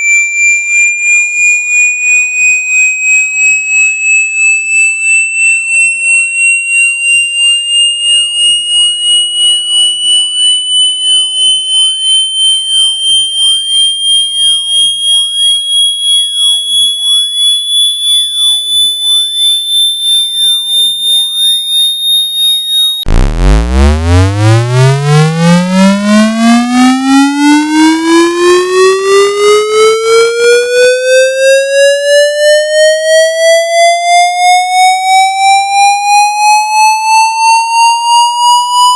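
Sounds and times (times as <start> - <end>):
pulsing electronic tone: 7.7 - 32.5
buzzy rising sweep: 23.1 - 26.8.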